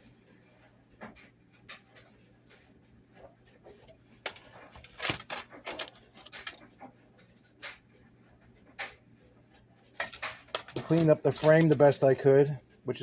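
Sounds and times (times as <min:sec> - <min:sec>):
small parts clicking and knocking: 0:04.2 - 0:07.8, 0:09.9 - 0:12.1.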